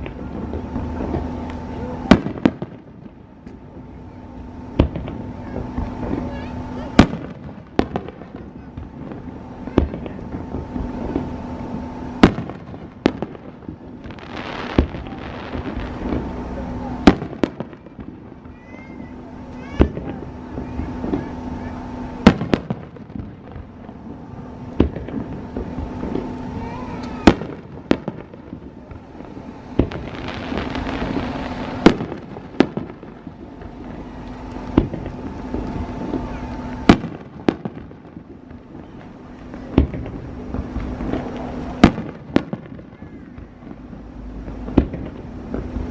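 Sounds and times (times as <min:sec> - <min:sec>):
fireworks bangs: 0:00.0 - 0:45.9
hissing crackle: 0:00.0 - 0:45.9
low rumble: 0:00.0 - 0:45.9.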